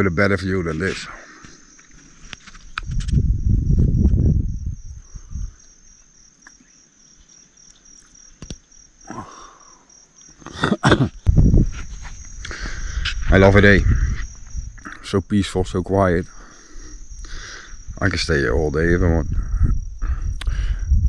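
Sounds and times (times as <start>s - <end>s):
insects trilling: 0.0s - 21.0s
low rumble: 2.9s - 5.6s.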